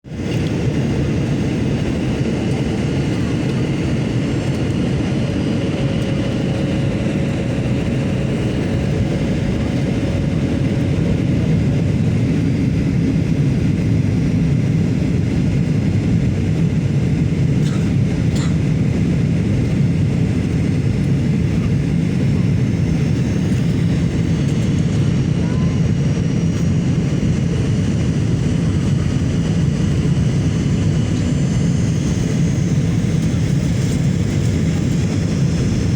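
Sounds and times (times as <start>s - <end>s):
airliner cabin engine rumble: 0.1s - 35.9s.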